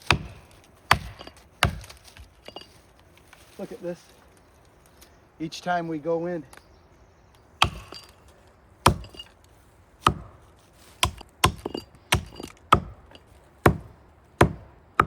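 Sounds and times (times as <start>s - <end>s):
axe chopping into tree trunk: 0.0s - 2.6s, 7.6s - 8.2s, 8.8s - 9.2s, 10.0s - 15.0s.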